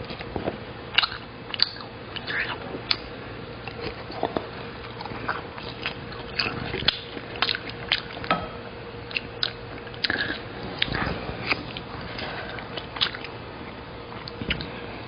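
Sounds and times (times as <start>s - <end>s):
person chewing and biting: 1.0s - 8.3s, 9.1s - 13.4s.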